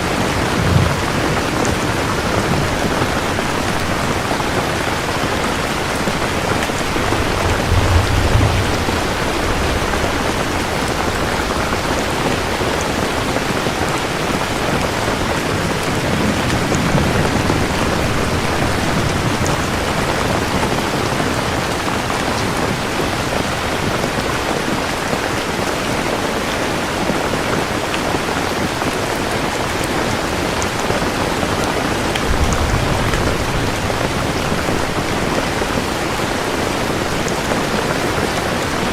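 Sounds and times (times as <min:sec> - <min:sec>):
low thunder rumbles: 0:00.0 - 0:23.2, 0:31.3 - 0:38.8
heavy rain pouring: 0:00.0 - 0:38.9.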